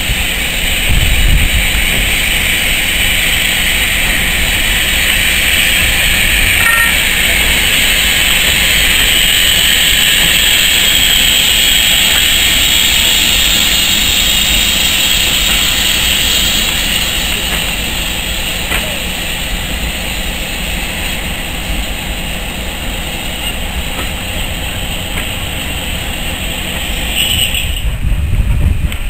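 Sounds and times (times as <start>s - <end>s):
steam train passing: 0.0s - 29.0s.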